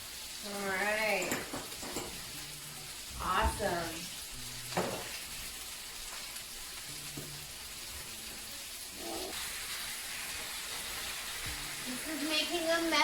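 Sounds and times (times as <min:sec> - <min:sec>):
chicken sizzling in a frying pan: 0:00.0 - 0:13.0.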